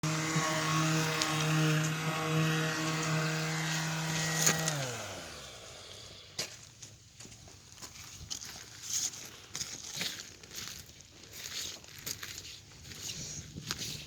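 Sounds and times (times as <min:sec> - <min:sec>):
motor running and winding down: 0:00.0 - 0:06.3.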